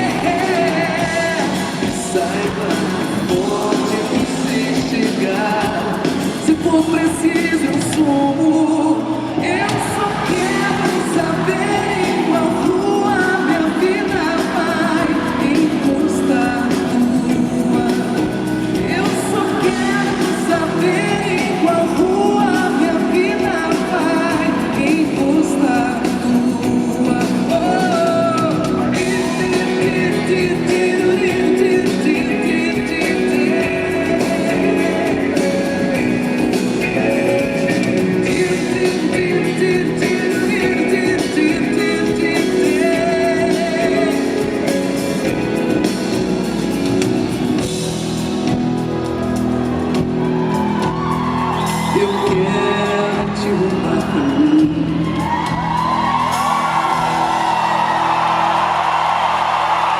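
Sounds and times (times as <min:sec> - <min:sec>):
live band playing pop song: 0:00.0 - 0:59.9
person singing: 0:00.0 - 0:59.9.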